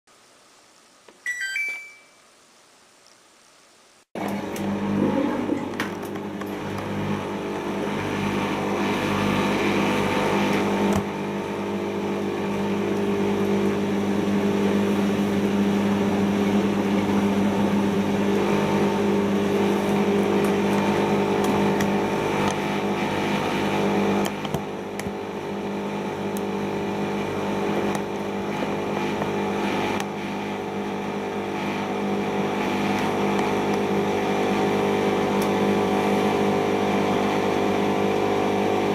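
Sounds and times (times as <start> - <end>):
washing machine spinning: 4.2 - 38.9.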